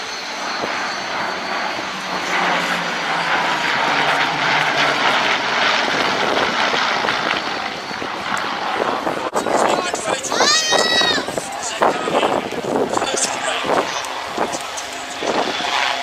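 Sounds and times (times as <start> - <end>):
propeller aircraft flying past: 0.0 - 16.0.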